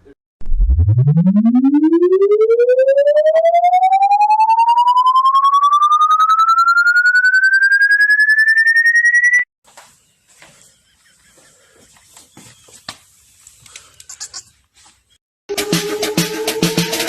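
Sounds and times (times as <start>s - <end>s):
rising pulsing electronic tone: 0.4s - 9.5s.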